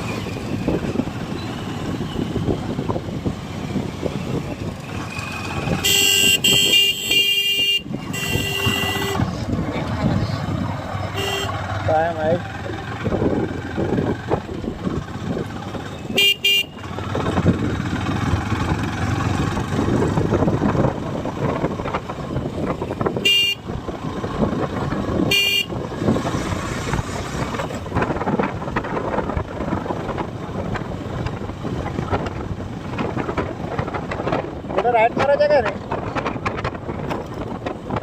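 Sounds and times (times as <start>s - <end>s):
motorcycle road and wind noise: 0.0s - 38.0s
vehicle horn beeps: 5.8s - 9.3s, 11.2s - 11.6s, 16.2s - 16.8s, 23.2s - 23.6s, 25.3s - 25.7s.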